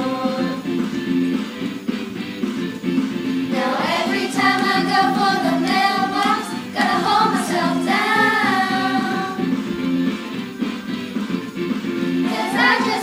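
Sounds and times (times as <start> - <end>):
instrumental accompaniment: 0.0 - 13.0
children singing together: 3.5 - 9.5, 12.2 - 13.0.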